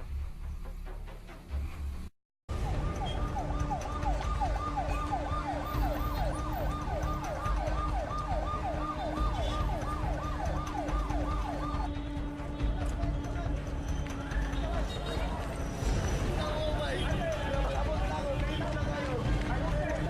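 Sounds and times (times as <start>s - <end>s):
emergency vehicle siren yelping: 2.5s - 11.9s.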